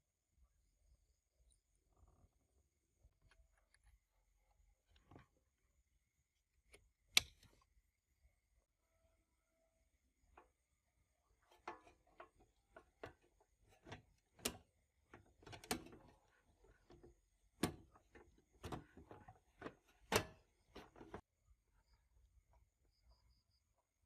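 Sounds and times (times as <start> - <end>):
clicks and knocks of hard parts: 11.5 - 21.2.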